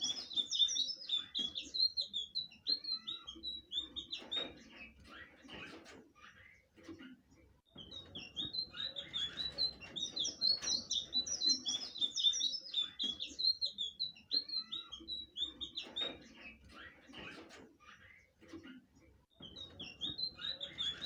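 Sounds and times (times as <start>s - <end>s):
bird singing high chirps: 0.0s - 5.0s, 7.7s - 16.6s, 19.3s - 21.0s.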